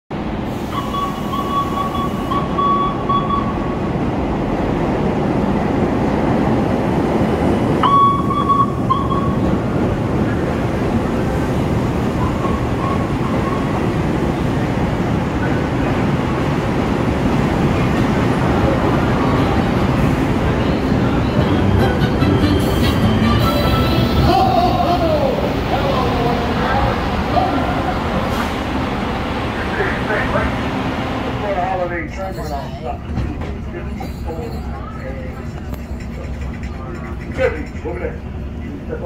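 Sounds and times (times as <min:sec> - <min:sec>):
train wheels rumbling on rails: 0:00.1 - 0:39.0
high steady tone: 0:07.8 - 0:09.4.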